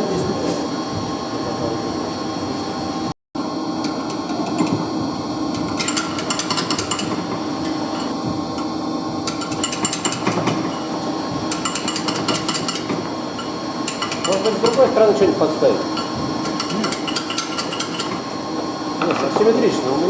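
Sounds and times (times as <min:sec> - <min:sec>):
steady machinery hum: 0:00.0 - 0:20.0
metal tools tapping and scraping: 0:05.6 - 0:08.1, 0:09.3 - 0:10.9, 0:11.5 - 0:14.9, 0:15.9 - 0:18.2.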